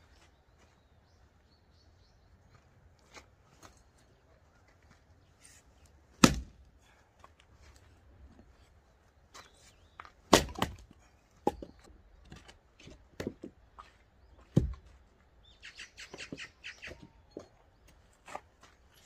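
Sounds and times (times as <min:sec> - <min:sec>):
axe chopping firewood: 0:06.1 - 0:06.7, 0:10.2 - 0:13.5, 0:14.5 - 0:14.8.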